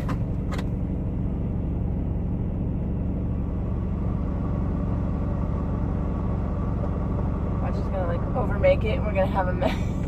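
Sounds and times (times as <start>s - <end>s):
diesel truck engine drone: 0.0s - 10.0s.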